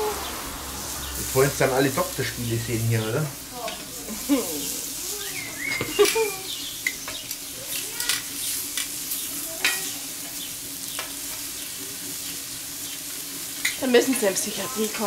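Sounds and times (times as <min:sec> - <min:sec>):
food sizzling on hot plate: 0:00.0 - 0:15.0
tongs tapping metal plate: 0:05.8 - 0:09.0, 0:09.6 - 0:10.0, 0:13.6 - 0:13.8.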